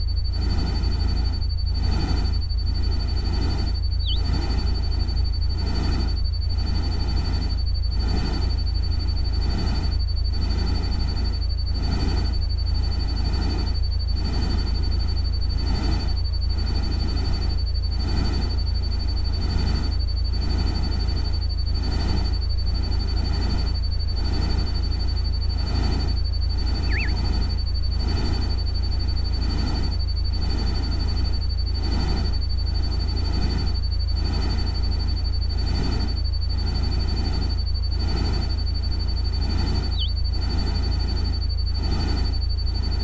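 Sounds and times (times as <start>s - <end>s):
deep constant rumble: 0.0s - 9.1s, 24.4s - 33.6s
pulsing noise: 1.8s - 6.2s, 24.6s - 29.9s, 38.0s - 42.9s
thin high tone: 26.8s - 27.4s.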